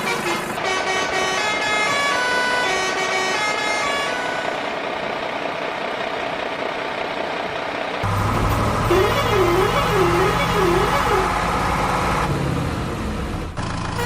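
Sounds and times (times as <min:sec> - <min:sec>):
vehicle horn: 0:00.0 - 0:04.6, 0:08.9 - 0:11.4
engine noise: 0:00.0 - 0:14.0.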